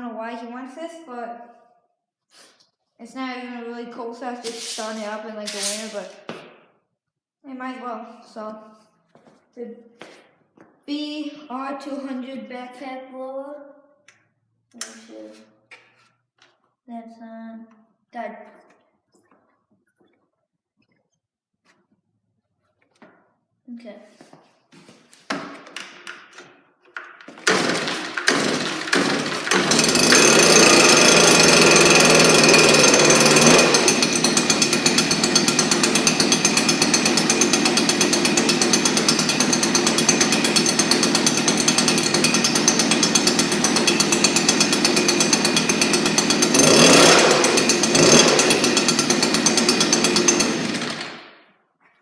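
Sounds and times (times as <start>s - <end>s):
starter cord pulls: 27.2s - 51.2s
two-stroke blower engine running: 27.4s - 51.3s.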